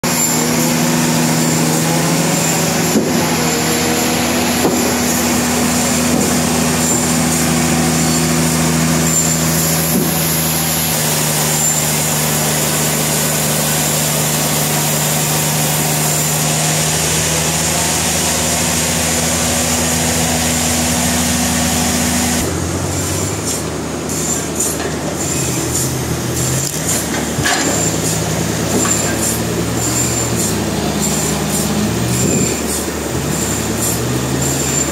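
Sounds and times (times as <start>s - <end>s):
sawmill engine and saw cutting log: 0.0s - 34.9s
sharp knocks: 4.5s - 5.2s.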